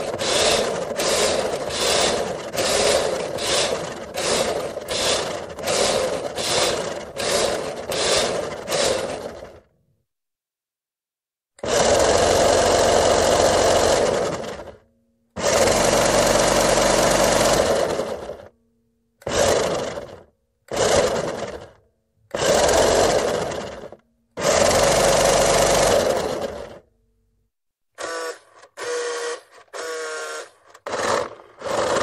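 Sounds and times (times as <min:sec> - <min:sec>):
toy electric motor whining: 0:00.0 - 0:09.4, 0:28.0 - 0:32.0.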